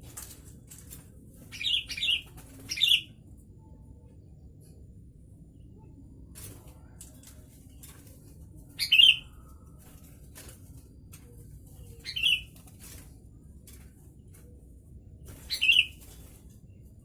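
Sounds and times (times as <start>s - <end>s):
faint ticks and rustles: 6.3s - 17.0s.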